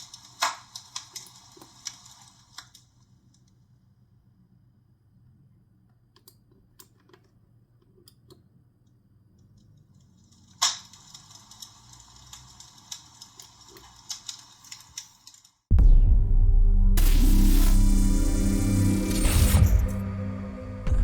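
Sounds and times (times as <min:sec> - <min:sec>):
recorded fire crackle from speaker: 0:00.0 - 0:03.0, 0:10.3 - 0:15.6.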